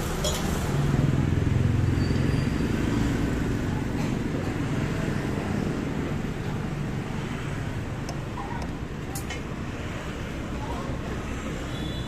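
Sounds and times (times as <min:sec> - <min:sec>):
vehicle engine passing by: 0:00.0 - 0:08.0
traffic rumble: 0:00.0 - 0:12.0.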